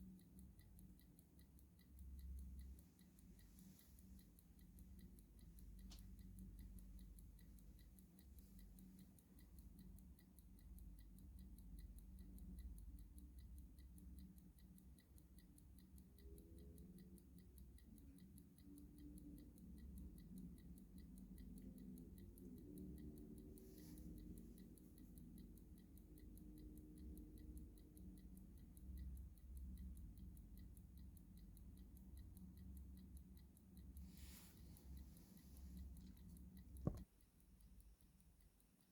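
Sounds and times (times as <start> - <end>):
clock ticking: 0.0 - 38.9.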